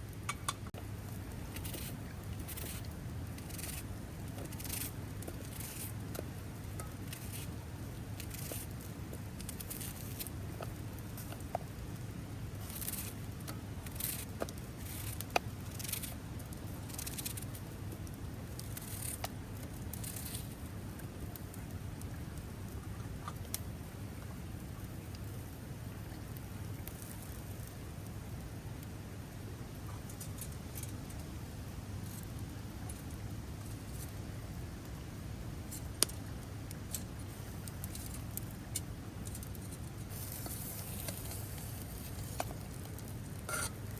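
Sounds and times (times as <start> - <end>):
soft scraping strokes: 39.4 - 43.8.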